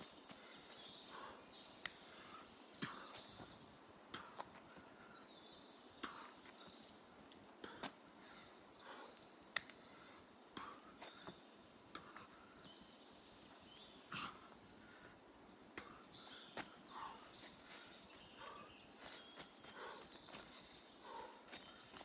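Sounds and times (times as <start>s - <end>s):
bird chirps: 5.0s - 14.6s, 15.5s - 22.0s.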